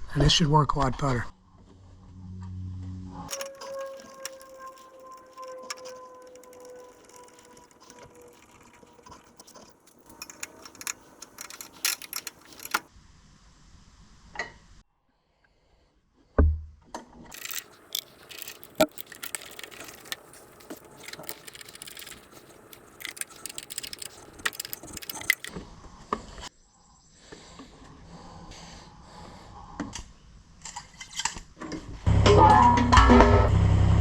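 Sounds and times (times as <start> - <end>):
metal tools clinking and rattling: 3.3 - 12.9, 17.3 - 25.5
soft steady rustle: 3.3 - 12.9, 17.3 - 25.5.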